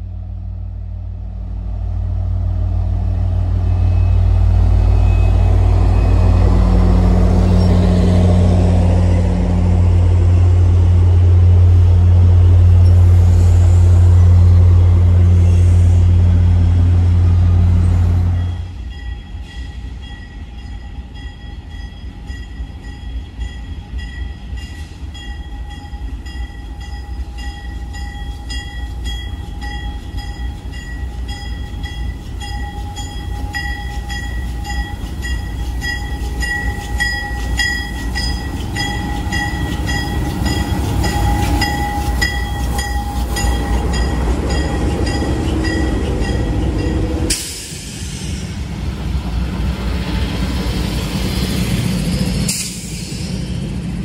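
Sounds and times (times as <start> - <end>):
train rumbling: 0.0 - 54.0
high ringing tones: 3.6 - 7.9, 18.3 - 47.3.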